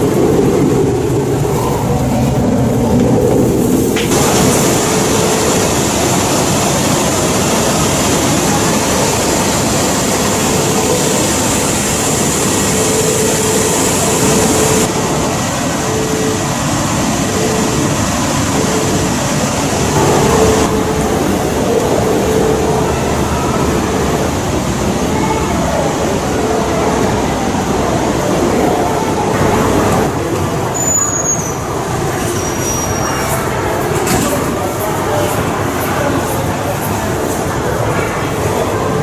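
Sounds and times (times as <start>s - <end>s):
train rumble and hiss: 0.0s - 39.0s.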